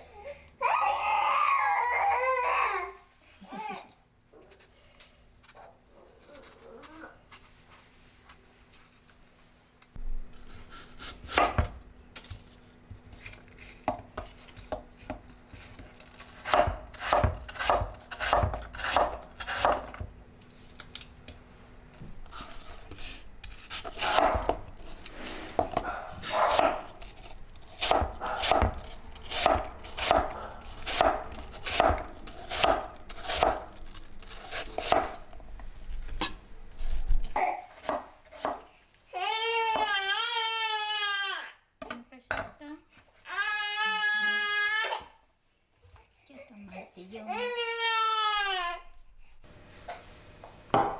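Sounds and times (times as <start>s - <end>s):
knife chopping on wooden board: 10.7s - 11.8s, 13.8s - 20.1s, 23.4s - 24.8s, 25.6s - 35.3s, 37.8s - 38.7s.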